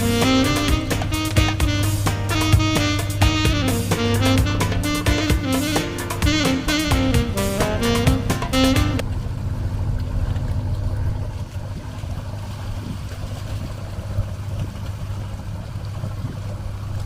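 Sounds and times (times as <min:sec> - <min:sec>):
saxophone jazz tune: 0:00.0 - 0:09.0
boat engine drone: 0:00.0 - 0:17.0
water noise: 0:00.0 - 0:17.0
wind: 0:00.0 - 0:17.0.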